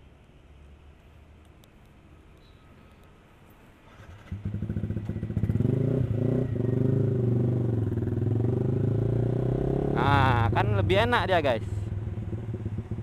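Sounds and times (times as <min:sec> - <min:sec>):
motorcycle engine starting and running: 0:03.9 - 0:13.0.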